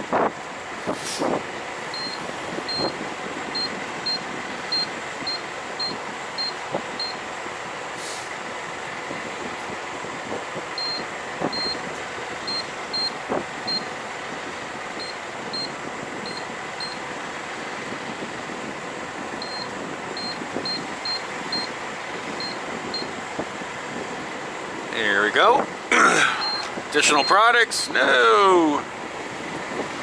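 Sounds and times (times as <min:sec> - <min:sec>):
keypad beeps: 0:01.9 - 0:02.9, 0:03.6 - 0:07.2, 0:10.8 - 0:11.8, 0:12.5 - 0:13.9, 0:15.0 - 0:15.7, 0:16.3 - 0:17.0, 0:19.4 - 0:21.7, 0:22.4 - 0:23.1.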